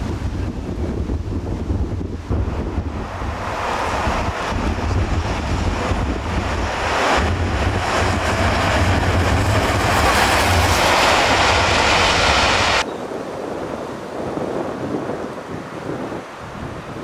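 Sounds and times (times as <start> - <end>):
wind buffeting the microphone: 0.0 - 17.0
steam train rumbling past: 2.2 - 12.9.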